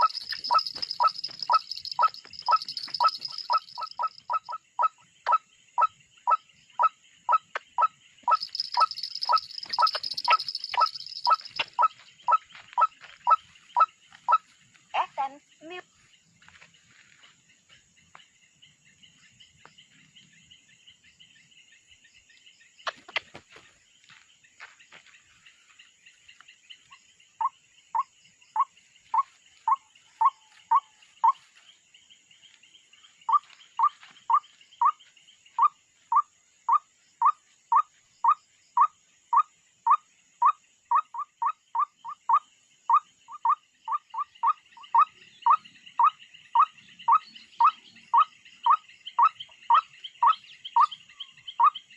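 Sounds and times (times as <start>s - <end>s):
waterhen calling: 0.0s - 4.4s.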